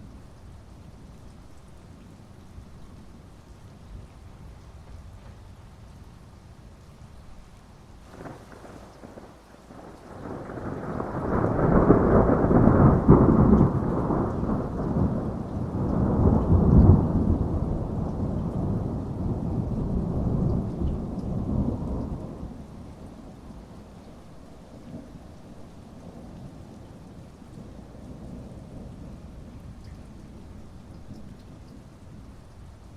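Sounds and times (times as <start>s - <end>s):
heavy rain: 0.0s - 32.9s
thunder rolling: 8.1s - 22.6s.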